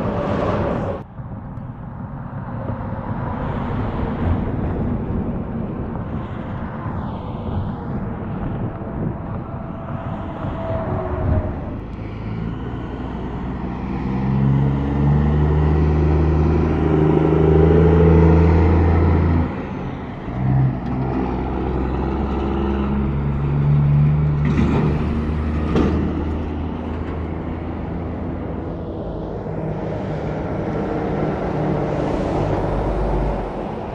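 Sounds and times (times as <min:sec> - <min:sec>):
truck engine droning: 0:00.0 - 0:33.9
vehicle engine passing: 0:07.0 - 0:33.9.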